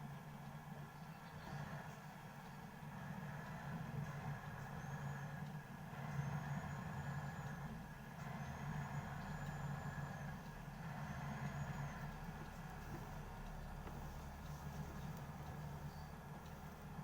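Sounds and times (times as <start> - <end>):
car cabin road and engine hum: 10.6 - 17.0.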